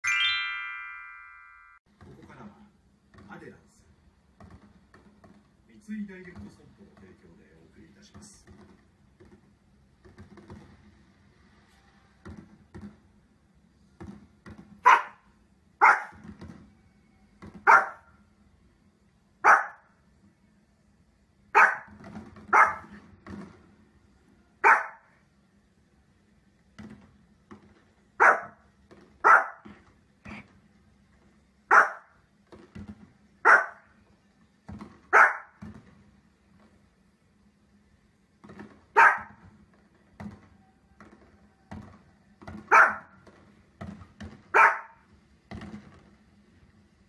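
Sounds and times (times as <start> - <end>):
dog barking: 14.8 - 16.2, 17.6 - 18.1, 19.4 - 19.9, 21.6 - 23.0, 24.6 - 25.2, 28.2 - 28.6, 29.2 - 29.7, 31.7 - 32.2, 33.4 - 33.9, 35.1 - 35.6, 39.0 - 39.4, 42.7 - 43.2, 44.5 - 45.0.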